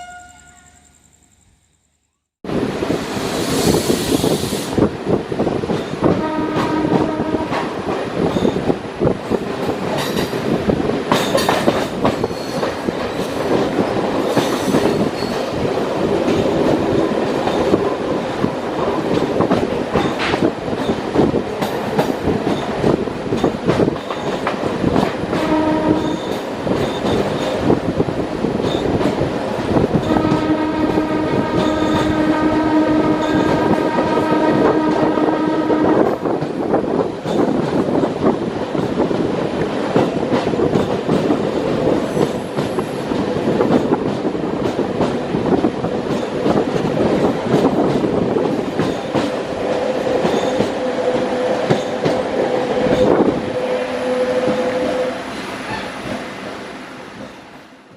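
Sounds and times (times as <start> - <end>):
train horn: 0.0 - 0.9, 6.1 - 7.8, 25.3 - 26.4, 29.9 - 36.3, 49.8 - 55.9
freight train wagons rumbling: 2.5 - 57.9.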